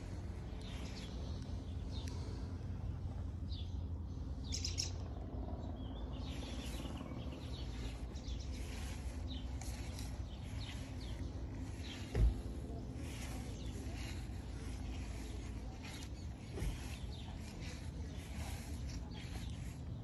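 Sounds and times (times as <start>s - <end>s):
steady low rumble: 0.0s - 20.0s
birds chirping and singing: 4.4s - 5.1s, 5.7s - 20.0s.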